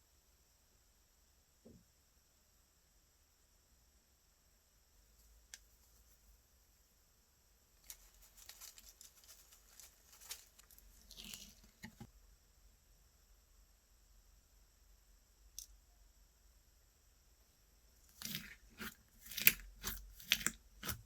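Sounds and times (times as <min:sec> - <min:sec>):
slime crackling and clicking: 0:18.2 - 0:21.0.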